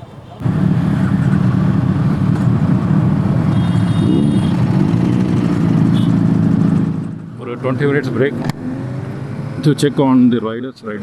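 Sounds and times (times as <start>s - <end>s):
motorcycle engine running: 0.4s - 7.3s.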